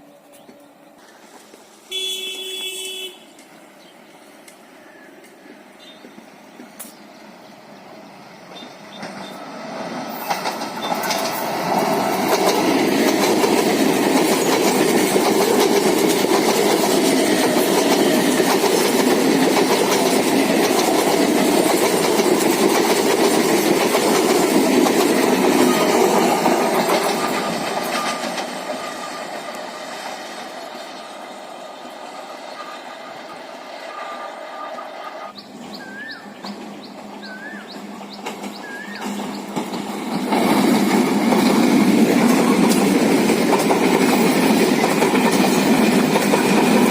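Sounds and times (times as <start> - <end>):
train wheels clattering: 8.5 - 35.4, 36.3 - 46.9.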